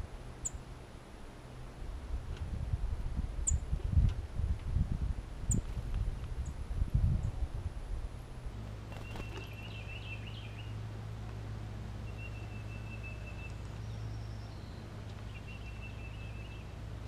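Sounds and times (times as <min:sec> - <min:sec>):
steady low hum: 0:00.0 - 0:17.0
songbird whistling: 0:09.0 - 0:10.7, 0:12.0 - 0:16.7.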